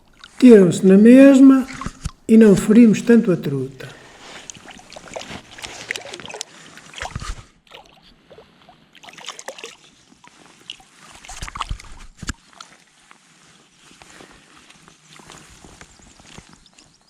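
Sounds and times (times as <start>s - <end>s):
water sloshing and splashing: 1.7s - 2.2s, 4.0s - 13.5s.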